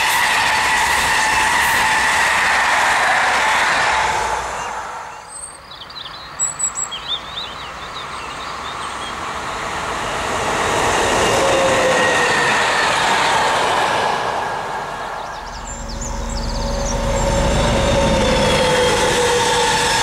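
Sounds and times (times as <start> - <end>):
train wheels rumbling on rails: 0.0 - 5.3, 6.9 - 20.0
thin steady squeal: 15.2 - 20.0.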